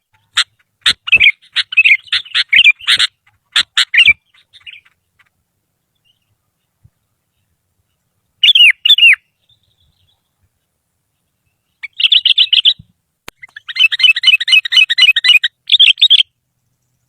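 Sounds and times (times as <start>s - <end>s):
bird singing: 0.0s - 17.0s.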